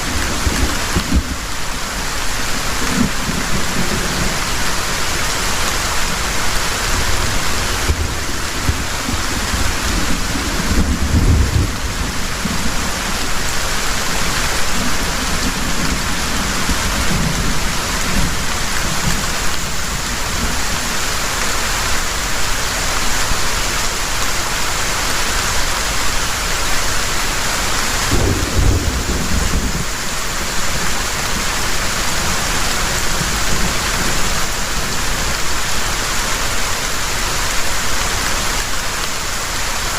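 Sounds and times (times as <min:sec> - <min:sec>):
heavy rain: 0:00.0 - 0:39.9
thunder rumbling: 0:07.0 - 0:20.7, 0:28.0 - 0:35.0.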